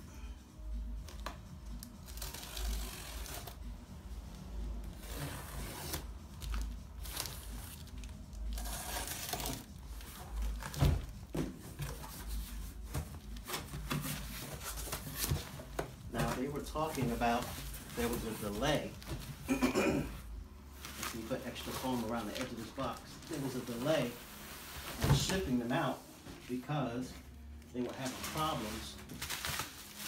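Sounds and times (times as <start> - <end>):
tape and cardboard tearing: 1.8 - 3.6, 4.9 - 7.8, 8.4 - 11.0.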